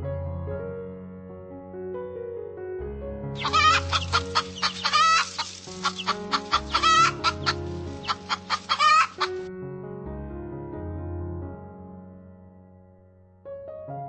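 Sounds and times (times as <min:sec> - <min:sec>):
soft piano music: 0:00.0 - 0:14.0
chickens clucking and cackling: 0:03.4 - 0:09.5.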